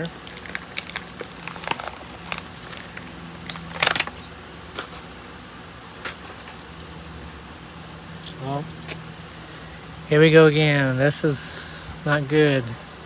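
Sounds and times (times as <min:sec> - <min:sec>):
model car and packaging handled: 0:00.0 - 0:05.1
faint steady hum: 0:00.0 - 0:13.0.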